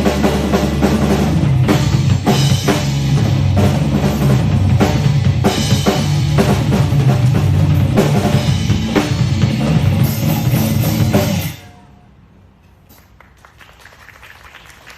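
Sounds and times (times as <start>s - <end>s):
backing music: 0.0s - 11.8s
drum kit playing: 0.0s - 11.8s.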